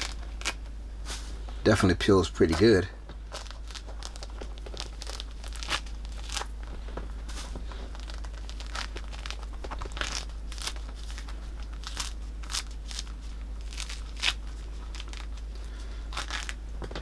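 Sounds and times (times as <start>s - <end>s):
citrus peel tearing: 8.0s - 15.4s.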